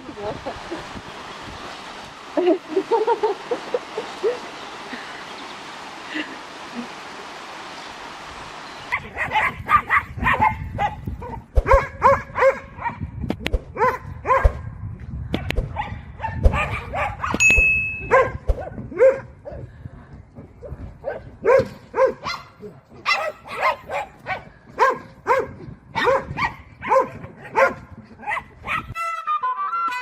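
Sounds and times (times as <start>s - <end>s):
dog barking: 8.9s - 13.0s, 13.8s - 14.6s, 15.7s - 17.4s, 18.1s - 19.6s, 21.0s - 28.9s
ding: 17.4s - 18.1s.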